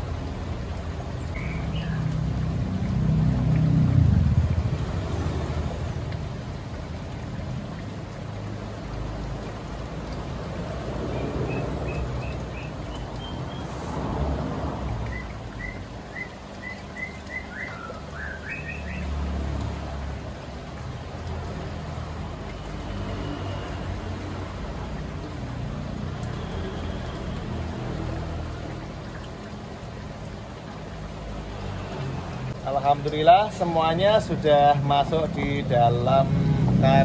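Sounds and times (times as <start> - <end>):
water sloshing in a basin: 0.0 - 37.0
steady low rumble: 3.8 - 7.6
songbird chirping: 11.0 - 13.7, 15.0 - 19.2.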